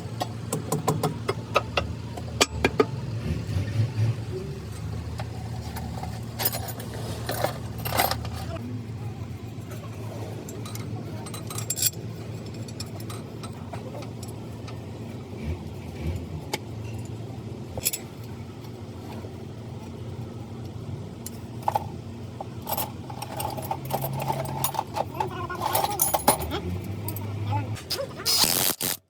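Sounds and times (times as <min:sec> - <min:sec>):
hand tools clinking on metal: 0:04.7 - 0:08.6, 0:10.5 - 0:14.5, 0:21.2 - 0:27.8.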